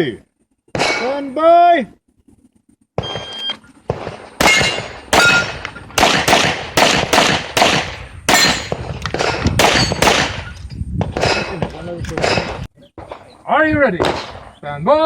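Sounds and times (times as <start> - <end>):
electronic timer beep: 3.0 - 3.6
steel targets ringing: 4.4 - 5.6, 8.3 - 8.7.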